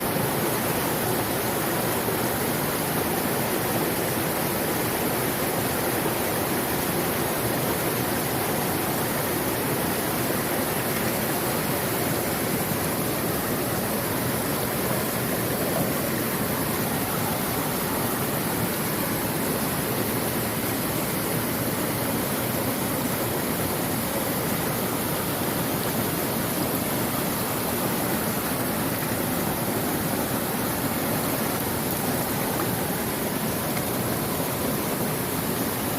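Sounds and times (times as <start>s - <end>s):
stream water rushing: 0.0s - 35.9s.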